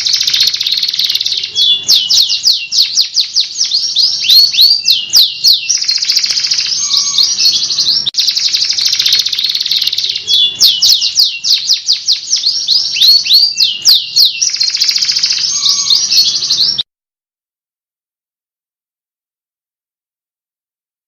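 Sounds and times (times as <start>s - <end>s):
canary singing trills: 0.0s - 16.8s.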